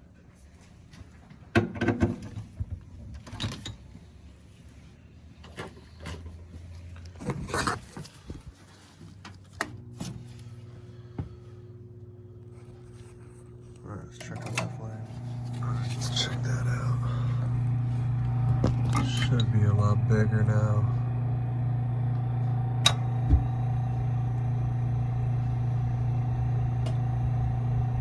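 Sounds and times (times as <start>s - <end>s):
furnace electric hum: 0.0s - 28.0s.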